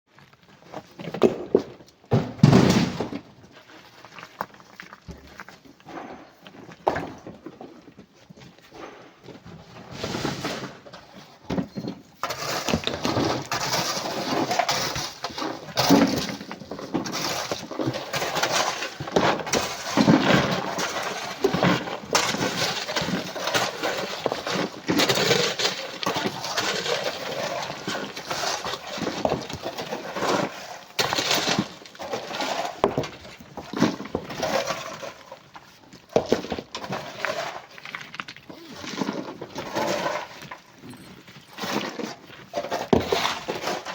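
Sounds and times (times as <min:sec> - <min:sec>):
stones clattering into truck: 0:01.1 - 0:03.4, 0:12.2 - 0:35.3.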